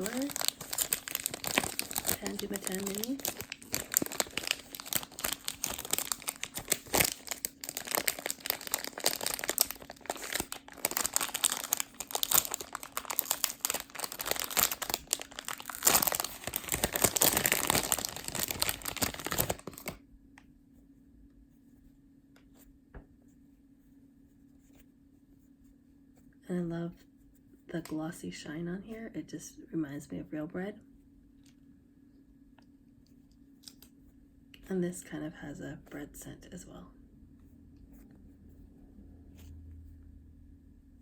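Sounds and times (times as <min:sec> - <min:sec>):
plastic wrap crinkling: 0:00.0 - 0:20.0.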